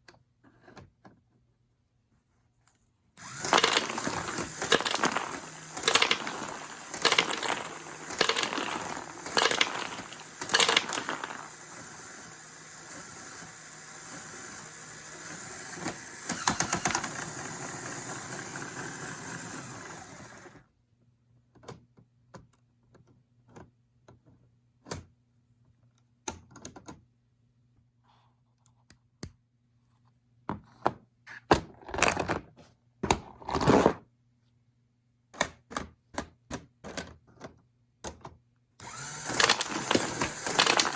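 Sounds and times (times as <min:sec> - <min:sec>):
plastic bricks rattling: 0:03.2 - 0:11.9, 0:38.9 - 0:40.9
plastic parts clattering: 0:03.2 - 0:13.1, 0:15.7 - 0:17.6, 0:38.8 - 0:40.9.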